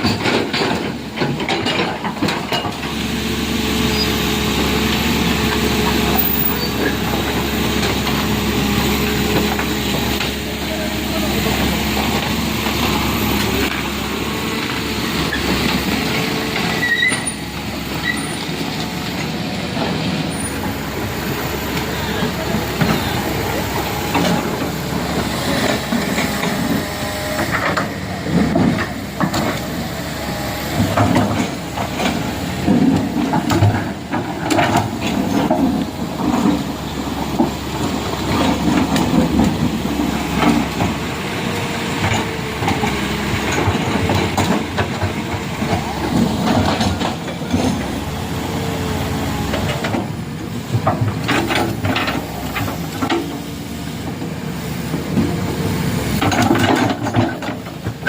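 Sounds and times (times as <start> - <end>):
knocks and clatter: 0.0 - 2.8, 56.1 - 58.0
heavy vehicle engines running: 0.0 - 58.0.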